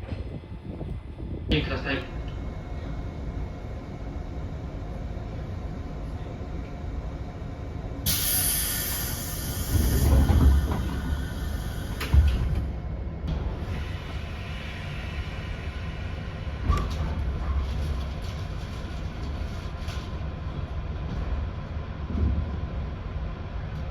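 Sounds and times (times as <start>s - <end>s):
train rumbling: 0.0s - 23.9s
loud air hiss: 8.1s - 12.5s.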